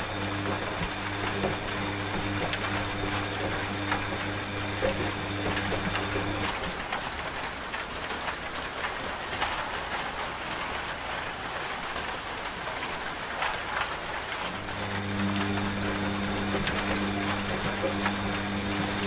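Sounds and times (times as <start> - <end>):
washing machine motor hum: 0.0 - 7.1, 14.5 - 19.0
rain falling: 0.0 - 19.0.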